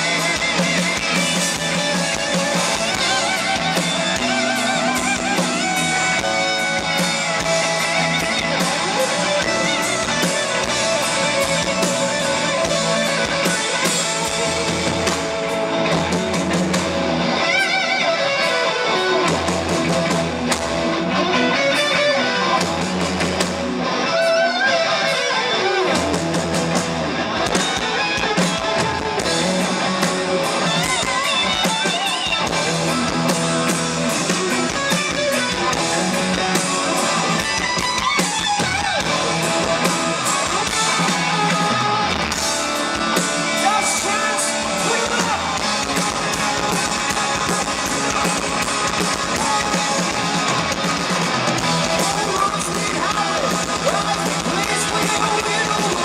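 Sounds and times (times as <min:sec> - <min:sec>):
bass guitar: 0:00.0 - 0:56.0
drums: 0:00.0 - 0:56.0
electric guitars: 0:00.0 - 0:56.0
person singing: 0:51.6 - 0:56.0.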